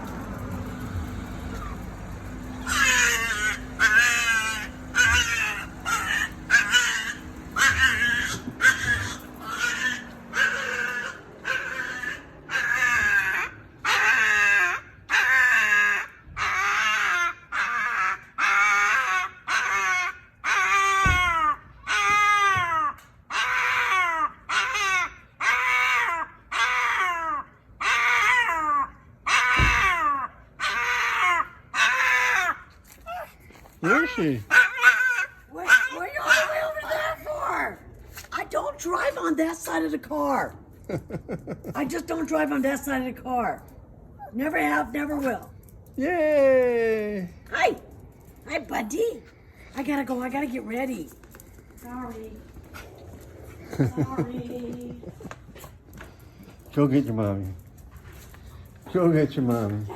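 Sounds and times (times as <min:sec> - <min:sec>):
small dog yowling: 0:01.5 - 0:37.8.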